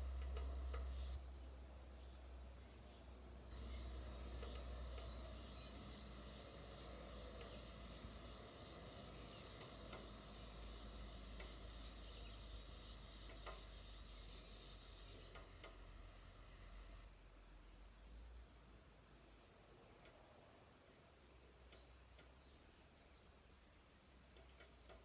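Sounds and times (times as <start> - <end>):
insect pulsing rasp: 0.0 - 1.2, 3.5 - 17.1.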